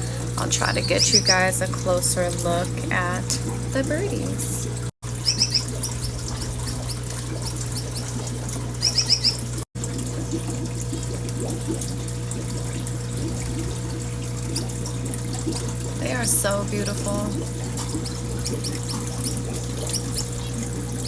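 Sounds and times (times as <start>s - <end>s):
low hum: 0.0s - 9.6s
finches chirping: 0.5s - 1.7s, 5.2s - 9.5s, 17.9s - 20.6s.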